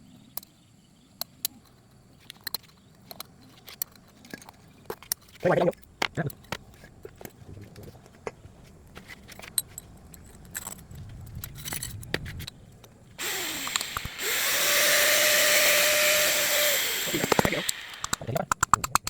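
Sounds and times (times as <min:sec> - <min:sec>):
power tool whining: 0:13.2 - 0:18.3.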